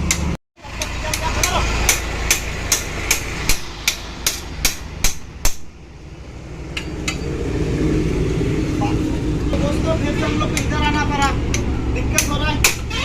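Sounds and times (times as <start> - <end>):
hammer striking metal: 0.0 - 5.8, 6.7 - 7.4, 10.2 - 13.0
low vehicle rumble: 0.0 - 13.0.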